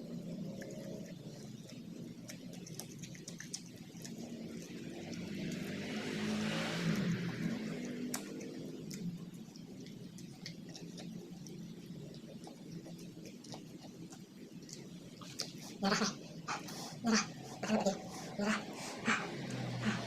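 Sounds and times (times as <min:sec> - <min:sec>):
wet chewing clicks: 0:00.0 - 0:20.0
rushing hissing noise: 0:16.5 - 0:20.0.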